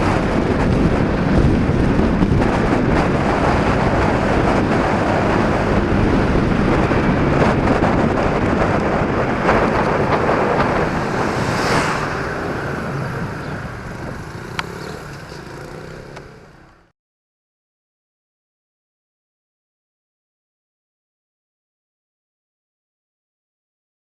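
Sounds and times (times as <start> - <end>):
wind on microphone: 0.0 - 15.3
scooter engine running: 0.0 - 16.8.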